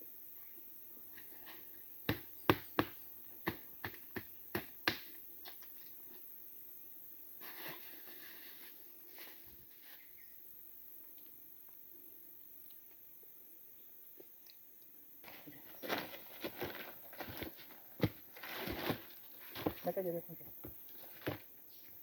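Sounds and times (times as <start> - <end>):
soft rustling scrapes: 7.4 - 10.3, 15.2 - 20.0.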